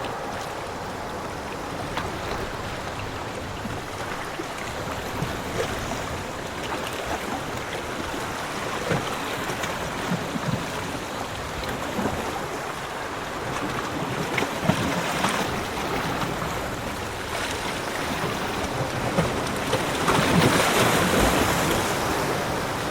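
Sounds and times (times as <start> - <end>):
sea waves washing on beach: 0.0 - 22.9.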